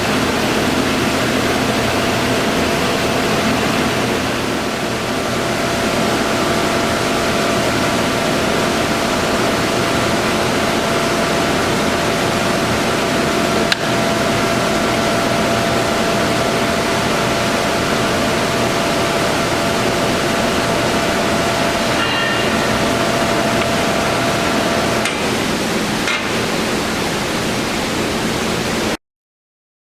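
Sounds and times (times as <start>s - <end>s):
lathe whirring: 0.0s - 27.5s
thin whine from lathe headstock: 20.9s - 25.5s.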